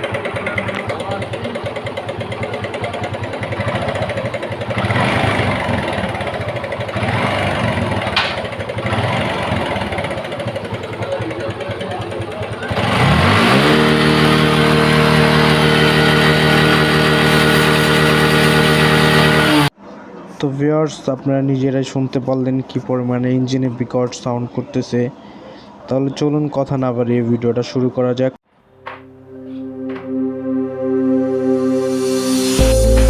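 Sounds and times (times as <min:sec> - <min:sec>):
motorcycle engine running rough: 0:00.0 - 0:19.7.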